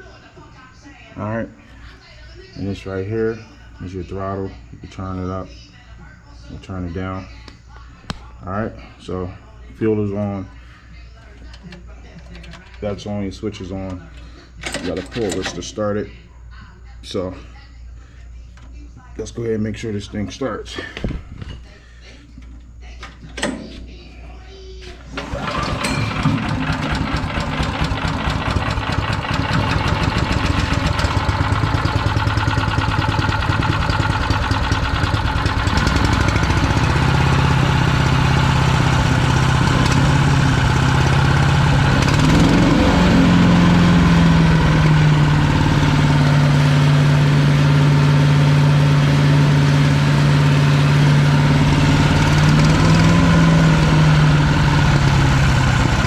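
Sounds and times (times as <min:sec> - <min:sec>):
small engine running: 0:25.1 - 0:56.0.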